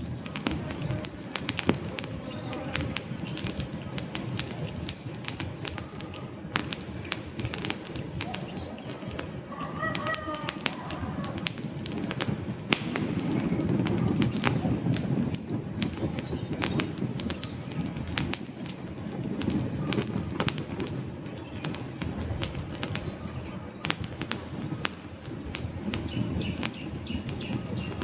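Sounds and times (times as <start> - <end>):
campfire crackling and popping: 0.0 - 28.0
low rumble of flames: 0.0 - 28.0
faint bird calls: 8.0 - 11.7.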